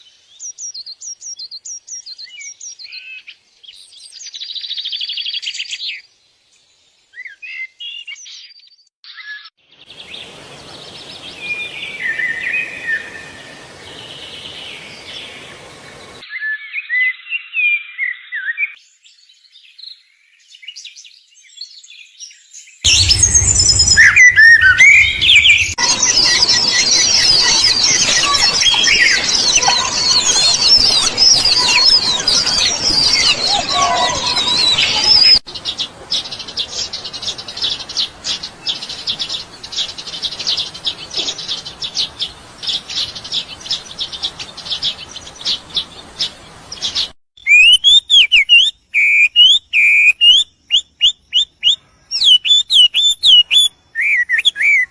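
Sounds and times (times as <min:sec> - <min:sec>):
songbirds chirping: 0:00.0 - 0:54.9
rising whistled bird notes: 0:22.9 - 0:35.4, 0:47.4 - 0:54.9.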